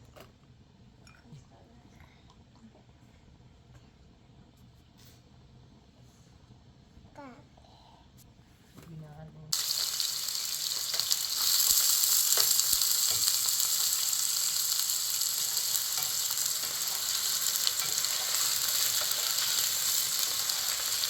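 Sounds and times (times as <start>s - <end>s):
food sizzling in a hot pan: 9.5s - 21.0s.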